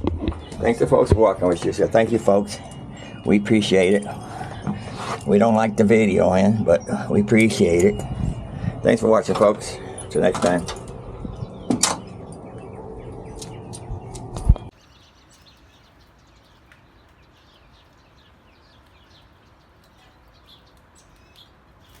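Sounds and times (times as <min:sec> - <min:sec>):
outdoor rumble: 0:00.0 - 0:14.8
birds chirping: 0:00.0 - 0:22.0.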